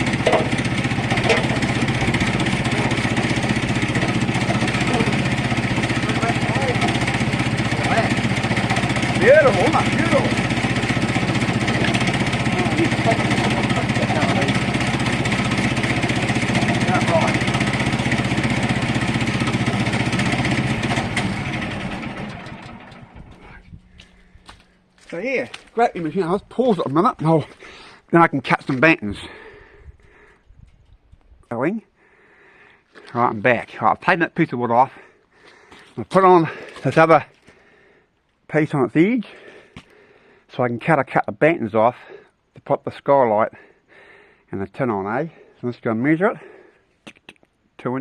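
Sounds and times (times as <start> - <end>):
engine knock: 0.0 - 23.6
small petrol engine running: 0.0 - 24.0.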